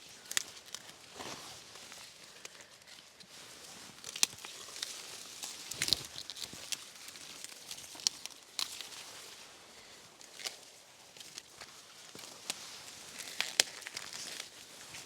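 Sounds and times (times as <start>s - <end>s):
dry corn leaves rustling: 0.0s - 15.0s
sharp cracks and snaps: 4.0s - 9.0s, 13.2s - 14.5s.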